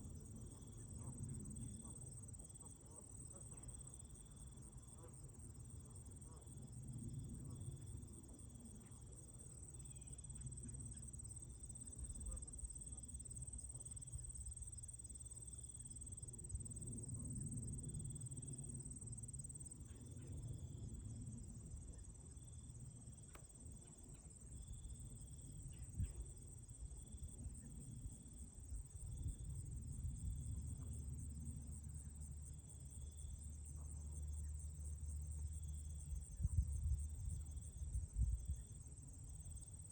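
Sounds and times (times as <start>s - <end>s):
insects trilling: 7.5s - 21.8s.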